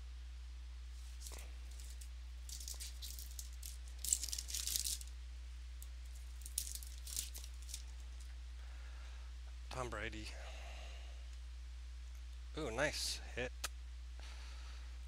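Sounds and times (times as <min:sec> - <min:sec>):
card pack wrapper tearing and crinkling: 0:01.0 - 0:05.1, 0:06.1 - 0:07.9.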